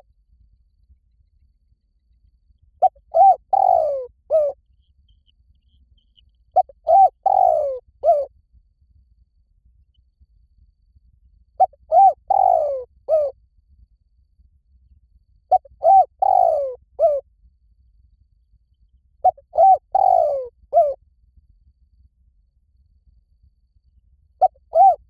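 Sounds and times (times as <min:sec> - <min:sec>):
dove cooing: 0:02.8 - 0:04.6, 0:06.6 - 0:08.3, 0:11.6 - 0:13.3, 0:15.5 - 0:17.2, 0:19.2 - 0:21.0, 0:24.4 - 0:25.0.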